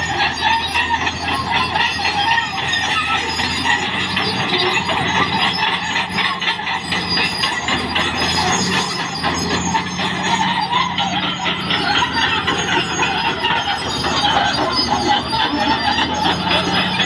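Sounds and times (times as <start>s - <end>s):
bulldozer engine humming: 0.0s - 17.0s
steel tracks clattering and squealing: 0.0s - 17.0s.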